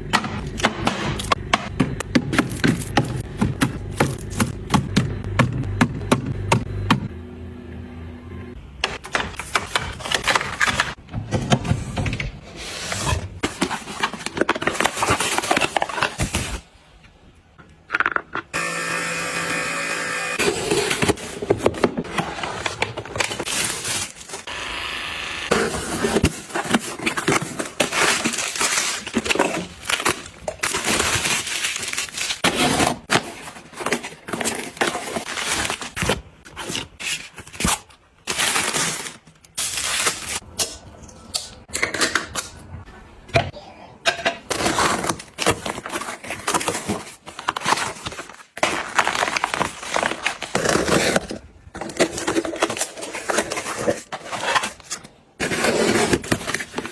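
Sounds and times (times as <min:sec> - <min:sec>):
kitchen items clattering: 0:08.8 - 0:16.6, 0:25.6 - 0:42.8, 0:43.4 - 0:56.9.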